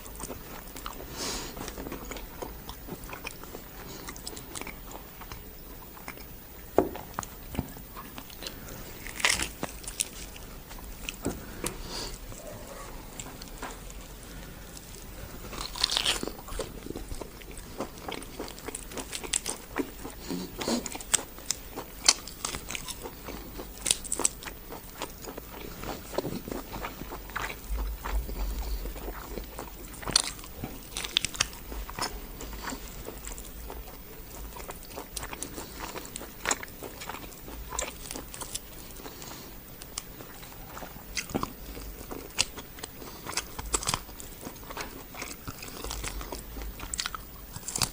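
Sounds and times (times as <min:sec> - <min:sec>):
crunchy bites: 0:00.0 - 0:47.9
wet chewing: 0:00.0 - 0:47.9.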